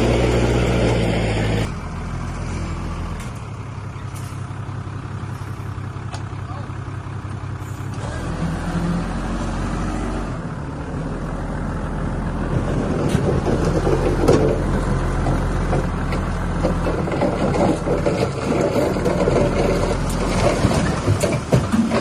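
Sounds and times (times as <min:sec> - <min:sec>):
diesel engine running: 0:00.0 - 0:22.0
metal clanks and rattles: 0:12.5 - 0:22.0.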